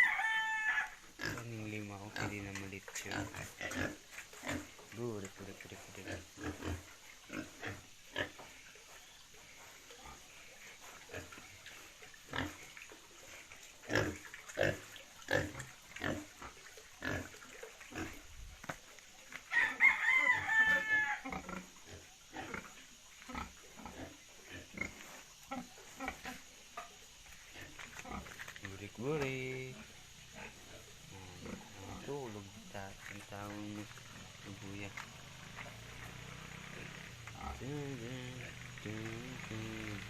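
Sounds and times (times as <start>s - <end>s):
rooster crowing: 0.0s - 1.0s, 19.5s - 21.4s
pigs grunting: 0.0s - 18.3s, 20.0s - 40.0s.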